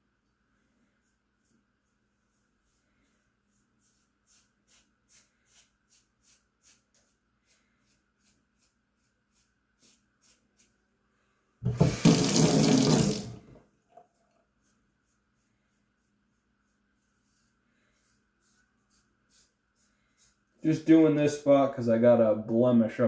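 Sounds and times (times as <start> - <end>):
tap running into sink: 11.6 - 13.6.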